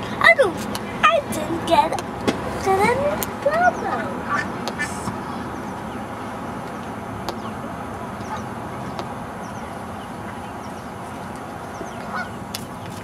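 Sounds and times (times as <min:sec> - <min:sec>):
low background rumble: 0:00.0 - 0:13.0
ducklings peeping: 0:03.5 - 0:13.0.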